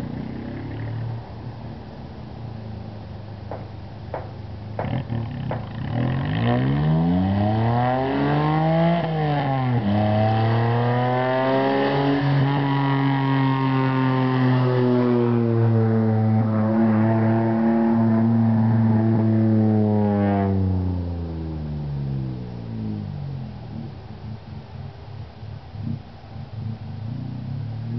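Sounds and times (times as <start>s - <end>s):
raspy car engine revving: 2.6s - 27.9s.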